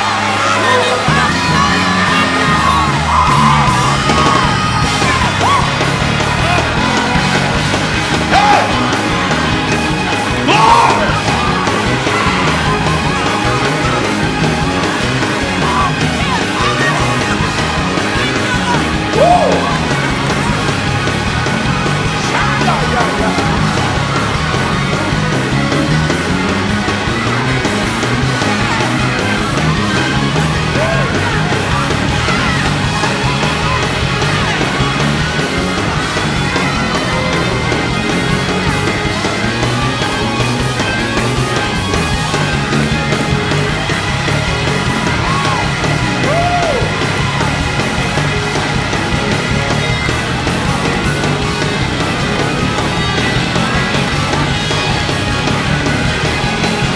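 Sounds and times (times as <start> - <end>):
band music: 0.0 - 56.9.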